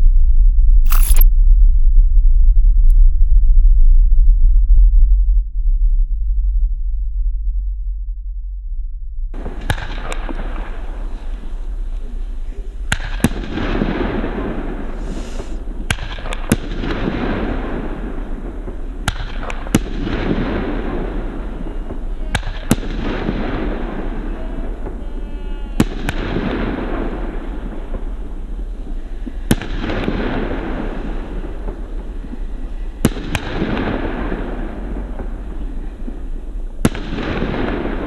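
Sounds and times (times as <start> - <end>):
fireworks bangs: 12.9 - 38.0
fireworks hissing crackle: 14.8 - 15.9.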